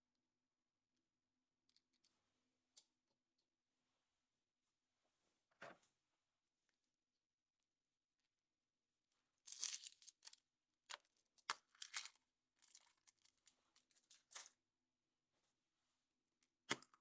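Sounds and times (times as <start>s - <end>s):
foil wrapper tearing and crinkling: 9.5s - 10.4s, 11.4s - 13.3s.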